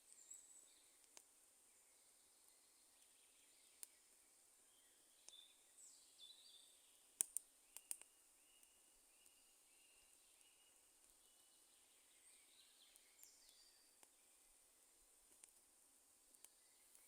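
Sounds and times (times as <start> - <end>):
wood fire crackling and popping: 7.2 - 8.1, 15.2 - 15.6
faint bird calls: 7.6 - 14.5.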